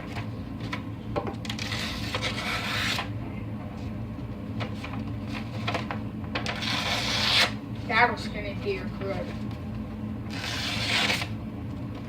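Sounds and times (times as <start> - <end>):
knife blade scraping: 1.6 - 3.1, 6.6 - 7.6.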